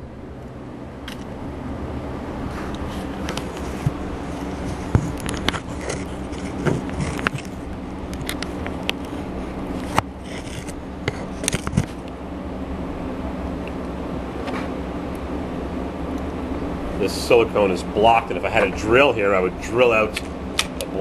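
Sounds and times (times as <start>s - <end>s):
steady low hum: 0.0s - 21.0s
small parts clicking and scraping: 2.7s - 9.2s, 9.8s - 12.0s.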